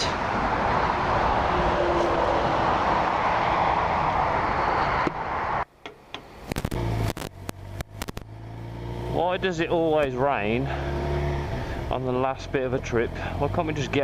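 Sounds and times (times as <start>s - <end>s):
rushing wind and road noise: 0.0s - 14.0s
clicks: 5.8s - 8.3s.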